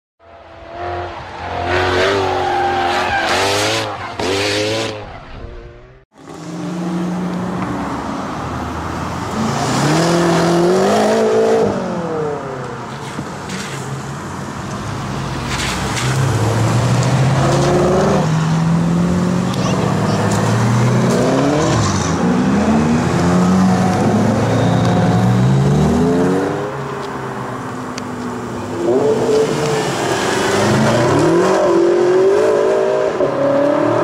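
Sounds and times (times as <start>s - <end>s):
car accelerating: 14.9s - 34.0s
car engine revving: 15.0s - 27.1s.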